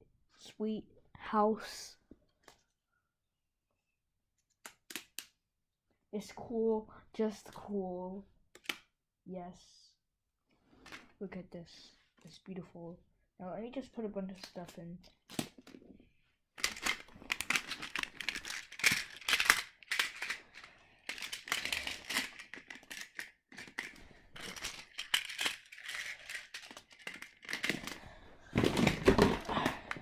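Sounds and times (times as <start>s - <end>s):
plastic building tiles clattering: 16.6s - 30.0s.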